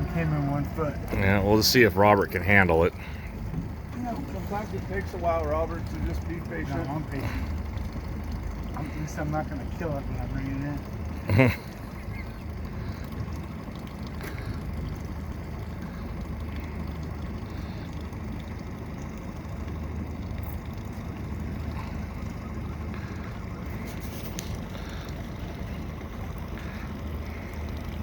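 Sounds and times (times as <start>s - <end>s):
boat motor humming: 0.0s - 28.0s.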